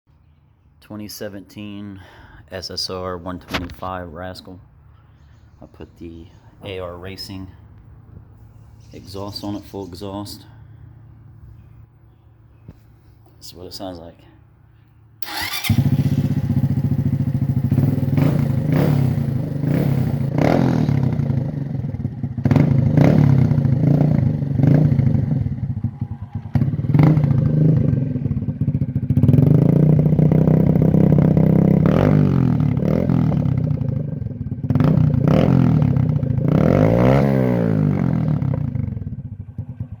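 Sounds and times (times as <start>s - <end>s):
pit bike engine revving: 15.2s - 39.7s.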